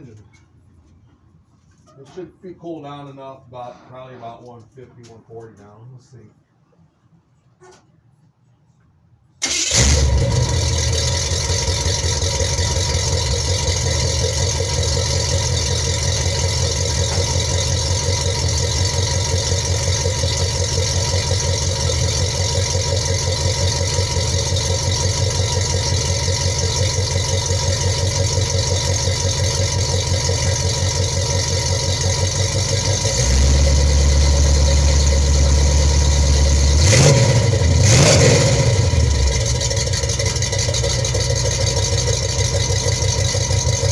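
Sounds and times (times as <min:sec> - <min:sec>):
car engine lumpy idle: 0:09.4 - 0:43.9
engine revving: 0:09.4 - 0:43.9.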